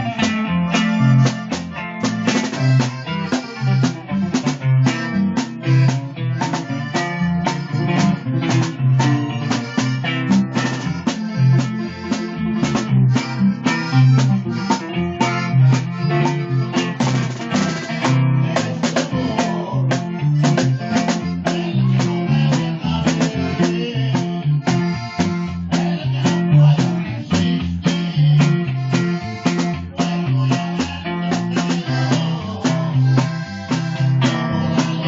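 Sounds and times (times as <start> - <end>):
plucked strings: 0.0 - 25.8
drum kit beat: 0.0 - 35.0.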